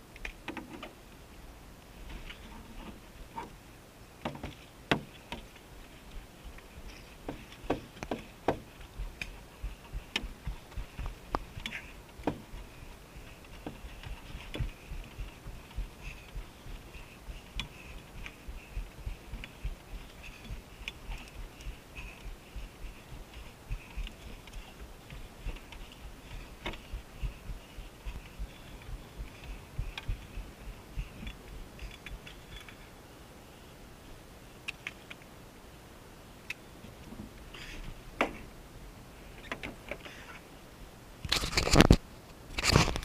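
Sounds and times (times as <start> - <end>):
sharp clicks and knocks: 4.2 - 5.6, 7.0 - 32.8
soft low thumps: 6.2 - 32.3.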